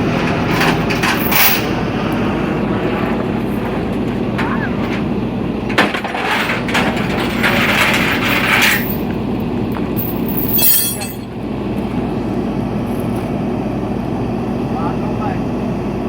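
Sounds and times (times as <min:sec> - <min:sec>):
sharp metallic clank: 0:00.0 - 0:01.9, 0:04.0 - 0:11.3
truck engine running: 0:00.0 - 0:16.0.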